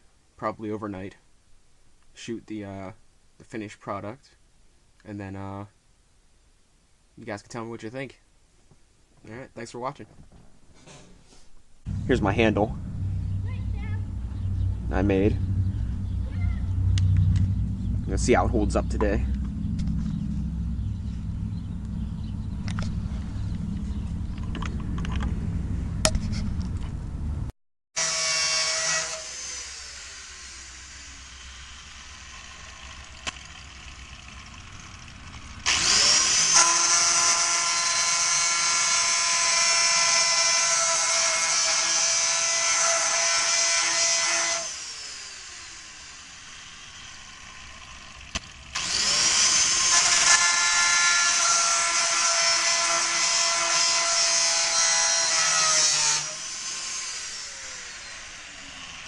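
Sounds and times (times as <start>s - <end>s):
low rumble with clicks: 11.9s - 27.5s
angle grinder whining: 28.0s - 59.0s.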